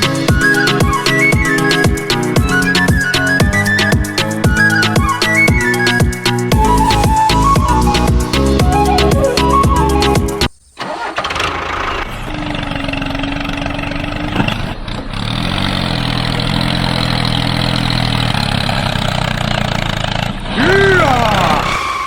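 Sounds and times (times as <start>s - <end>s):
music: 0.0s - 10.5s.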